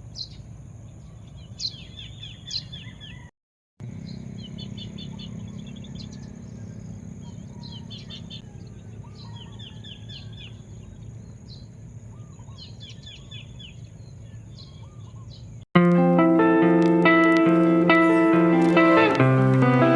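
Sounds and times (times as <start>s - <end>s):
birds chirping: 0.0s - 19.9s
low outdoor rumble: 3.8s - 12.8s
plucked guitar music: 15.8s - 19.9s.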